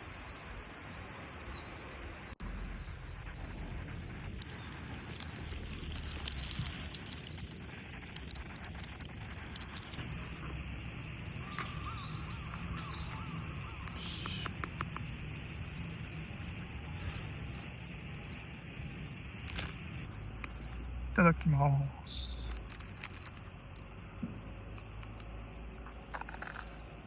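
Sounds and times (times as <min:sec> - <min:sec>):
crickets chirping: 0:00.0 - 0:27.0
faint clicks: 0:13.8 - 0:15.1.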